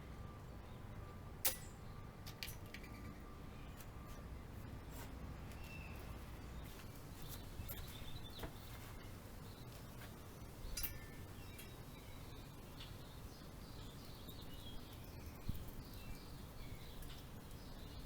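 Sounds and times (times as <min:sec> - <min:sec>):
metal tools clinking on bike parts: 0:10.7 - 0:11.7.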